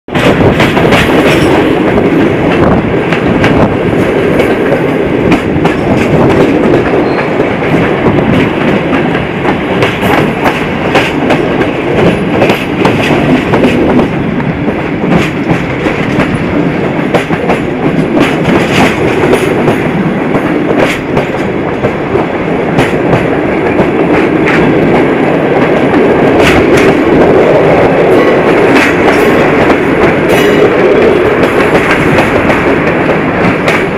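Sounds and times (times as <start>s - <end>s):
rail joint clicks: 0.1s - 33.9s
train wheels rumbling on rail: 0.1s - 33.9s.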